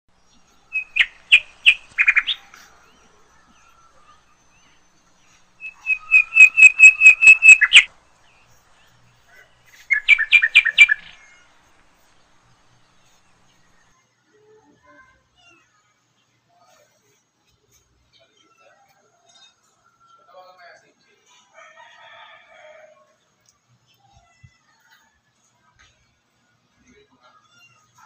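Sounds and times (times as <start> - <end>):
small bird chirping: 0.1 - 13.9.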